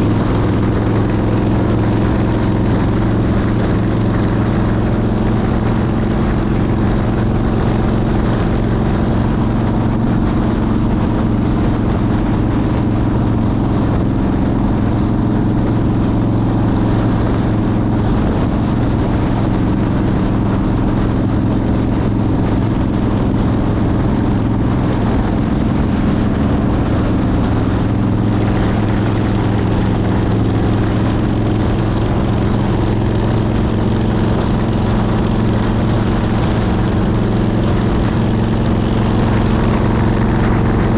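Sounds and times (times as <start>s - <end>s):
motorcycle engine cruising: 0.0s - 40.9s
wind noise: 0.0s - 40.9s.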